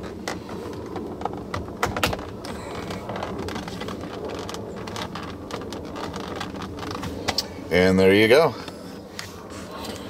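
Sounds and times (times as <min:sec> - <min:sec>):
plastic clicks and knocks: 0:00.0 - 0:07.5
low background rumble: 0:00.0 - 0:10.0.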